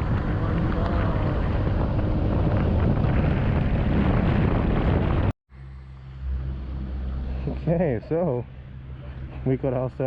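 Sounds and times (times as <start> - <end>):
wind rushing over microphone: 0.0 - 5.4
scooter engine and road noise: 0.0 - 10.0.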